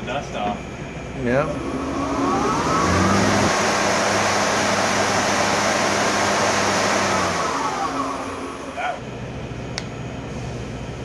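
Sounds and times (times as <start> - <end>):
lathe spindle whirring: 1.2 - 9.0.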